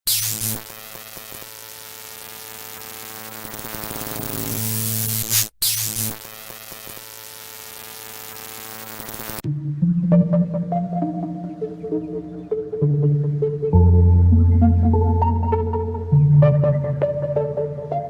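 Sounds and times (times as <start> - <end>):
static-like hiss: 0.1 - 9.4
synthesizer music: 9.4 - 18.0.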